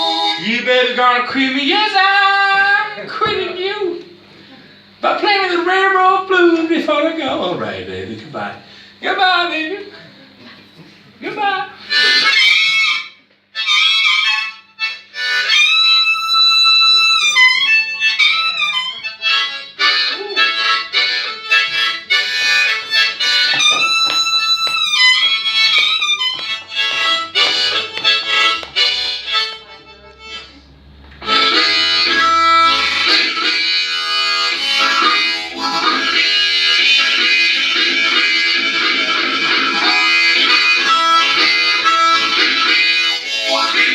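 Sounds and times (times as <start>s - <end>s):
blues harmonica solo: 0.0s - 0.7s, 11.8s - 43.9s.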